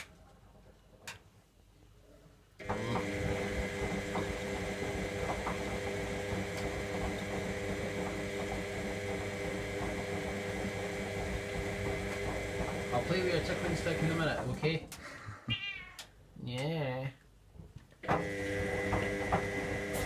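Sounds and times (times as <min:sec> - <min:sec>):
washing machine motor humming: 0:02.6 - 0:14.8, 0:18.0 - 0:20.0.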